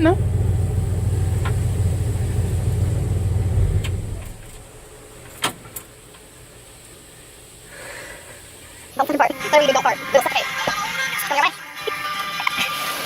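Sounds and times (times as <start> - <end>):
truck engine idling: 0.0 - 7.7.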